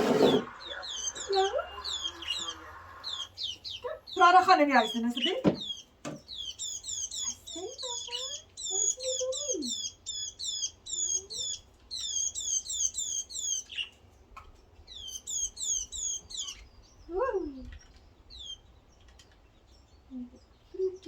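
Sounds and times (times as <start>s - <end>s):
low rising and falling squeal: 0.0s - 3.3s
small bird chirping: 0.0s - 21.0s.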